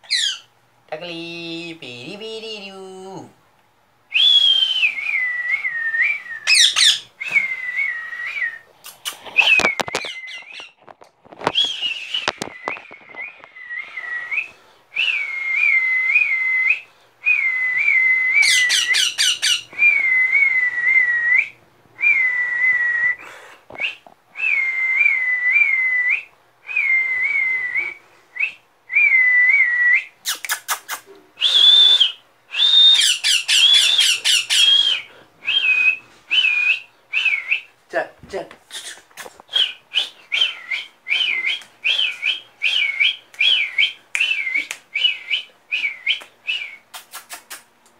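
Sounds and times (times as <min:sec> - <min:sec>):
baby parrot chirping: 0:00.0 - 0:00.5, 0:06.4 - 0:07.1, 0:18.4 - 0:19.7, 0:32.9 - 0:35.1
person whistling trills: 0:04.1 - 0:08.7, 0:11.5 - 0:30.6, 0:31.4 - 0:37.7, 0:38.7 - 0:47.1.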